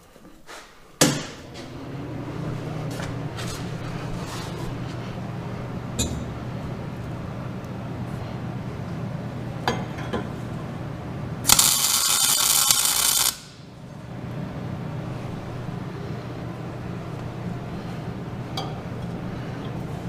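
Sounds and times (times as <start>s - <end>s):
welding arc crackling: 11.4s - 13.7s.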